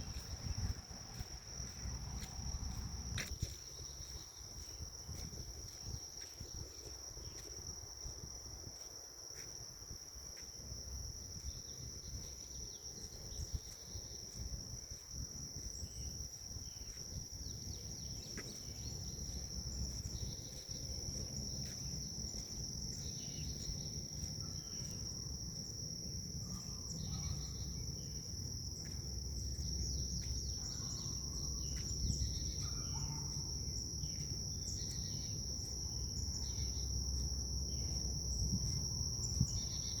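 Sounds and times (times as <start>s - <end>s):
wind rumble: 0.0s - 6.8s
insects trilling: 0.0s - 40.0s.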